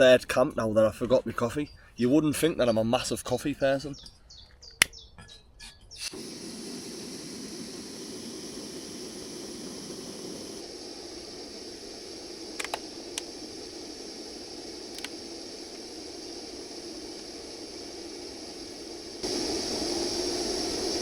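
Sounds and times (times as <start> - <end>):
gas stove burner hissing: 6.0 - 21.0.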